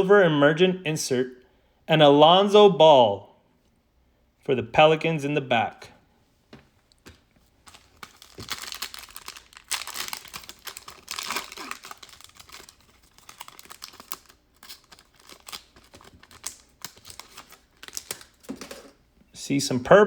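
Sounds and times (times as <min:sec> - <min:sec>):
cards being handled: 0:06.5 - 0:19.0
foil wrapper crackling and tearing: 0:07.6 - 0:18.9.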